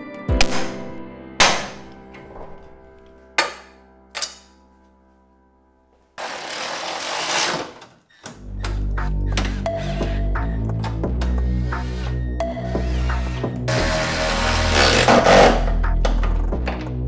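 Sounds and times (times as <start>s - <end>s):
background music: 0.0s - 7.6s, 8.3s - 17.0s
power tool running: 6.2s - 7.9s, 12.7s - 15.8s.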